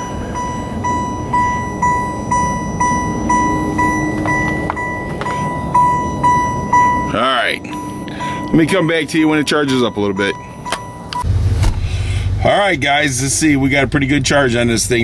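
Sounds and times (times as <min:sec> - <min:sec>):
dashboard warning chime dinging: 0:00.0 - 0:11.6.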